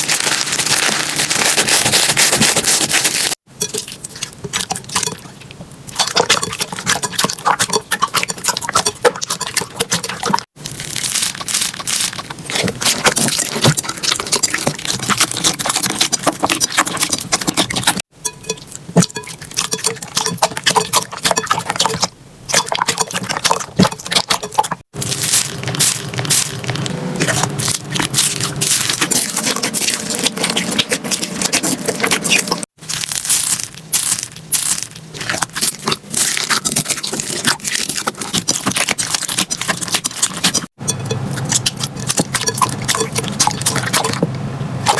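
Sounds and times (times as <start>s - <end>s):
slime crackling and popping: 0.0s - 3.4s, 10.0s - 18.0s, 24.9s - 44.2s.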